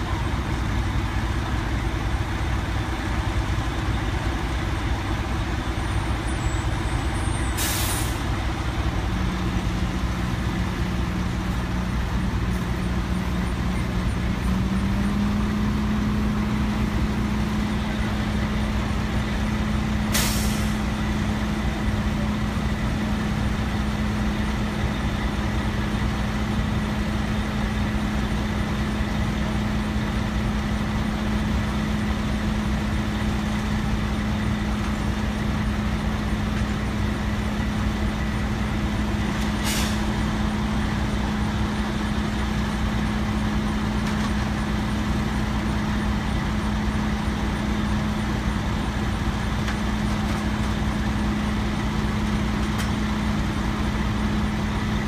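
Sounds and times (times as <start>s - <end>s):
diesel truck engine running: 0.0s - 55.0s
air hiss: 7.6s - 8.3s, 20.1s - 20.8s.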